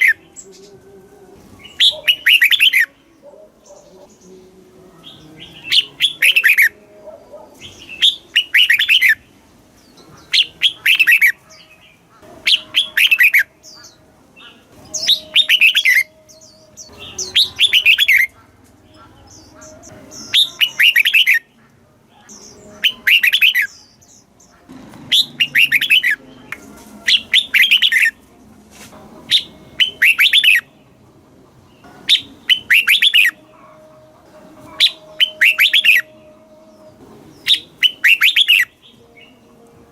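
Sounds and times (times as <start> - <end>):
bird singing short phrases: 1.6 - 2.9.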